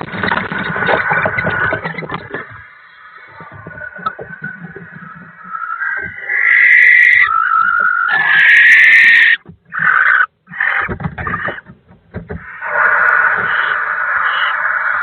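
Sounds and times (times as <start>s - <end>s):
barn owl screeching: 2.4s - 11.7s, 12.4s - 15.0s.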